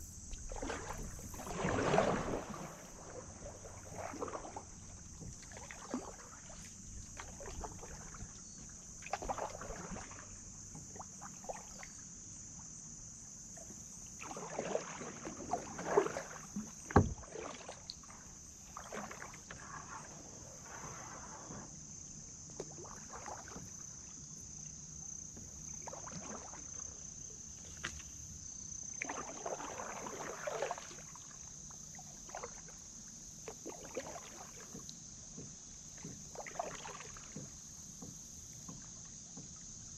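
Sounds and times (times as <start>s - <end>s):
paddle strokes splashing in water: 0.0s - 12.0s, 13.6s - 24.3s, 25.2s - 28.3s, 29.0s - 39.9s.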